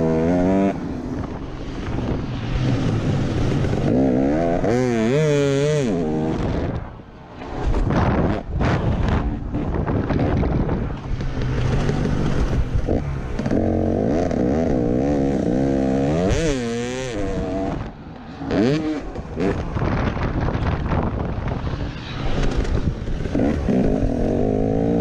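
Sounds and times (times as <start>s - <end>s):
motocross bike engine revving: 2.5s - 6.8s, 11.2s - 20.0s, 22.2s - 25.0s.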